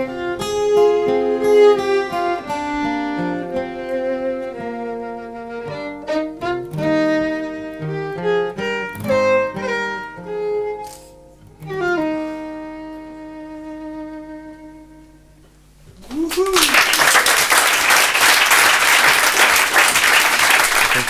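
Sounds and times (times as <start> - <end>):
violin playing slow melody: 0.0 - 15.6
guitar: 0.0 - 21.0.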